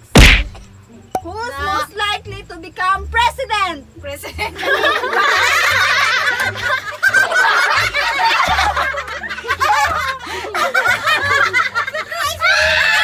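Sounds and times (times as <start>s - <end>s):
adults laughing together: 4.3s - 13.0s.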